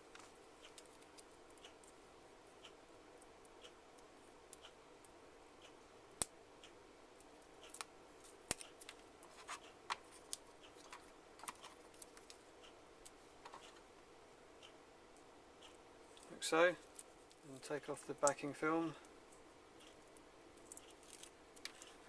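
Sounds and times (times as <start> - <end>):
plastic parts clicking and tapping: 8.5 - 12.4.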